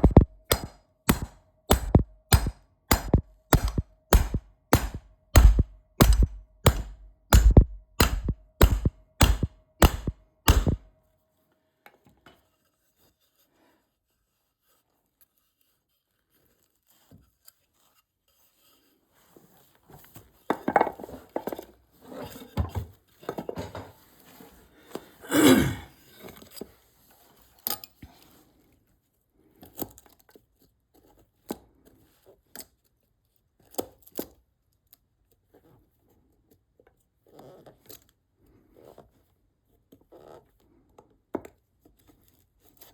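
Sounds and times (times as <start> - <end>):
hand tools and wood clattering: 0.0 - 10.8
sharp knocks on wood: 0.0 - 10.8.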